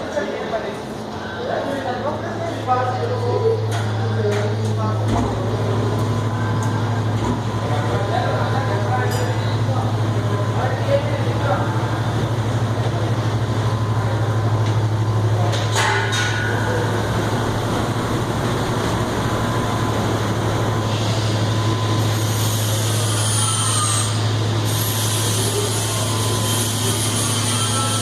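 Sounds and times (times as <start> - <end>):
washing machine brushes running: 4.2 - 28.0.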